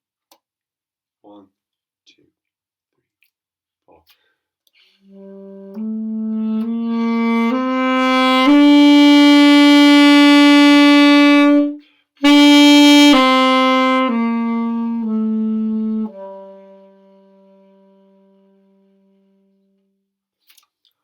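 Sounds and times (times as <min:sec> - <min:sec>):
saxophone slurring notes: 0:05.0 - 0:19.5.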